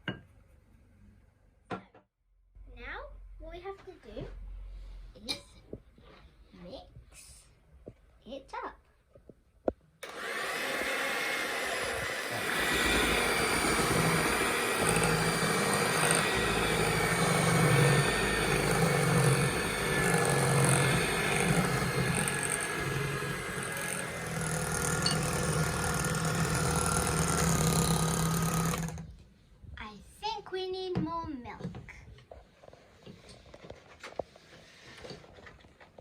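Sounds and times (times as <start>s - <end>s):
electric mixer motor humming: 10.0s - 29.1s.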